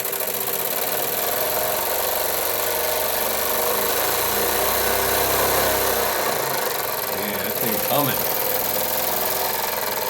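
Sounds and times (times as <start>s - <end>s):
toy steam engine chuffing: 0.0s - 10.0s.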